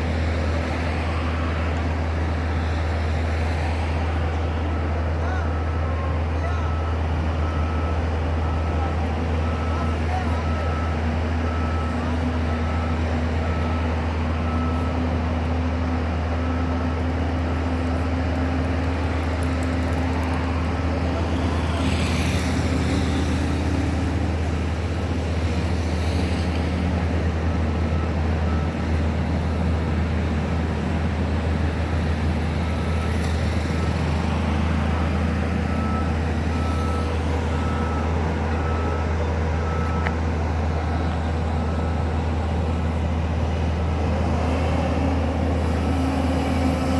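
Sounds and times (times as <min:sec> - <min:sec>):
diesel engine droning: 0:00.0 - 0:46.9
reversing alarm beeping: 0:04.6 - 0:19.1, 0:27.1 - 0:30.0, 0:31.7 - 0:44.2.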